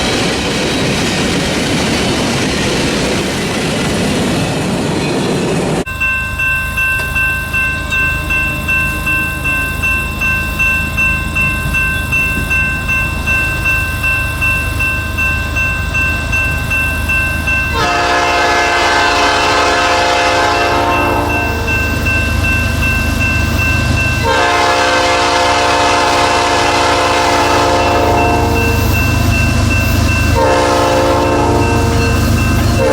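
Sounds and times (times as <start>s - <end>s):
freight train rhythmic clatter: 0.0s - 32.9s
diesel locomotive horn: 17.7s - 21.9s, 24.2s - 28.9s, 30.3s - 32.9s.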